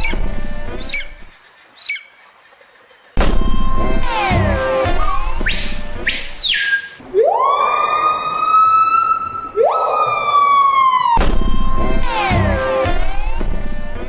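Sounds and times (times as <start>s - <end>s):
bird screaming: 3.4s - 11.1s.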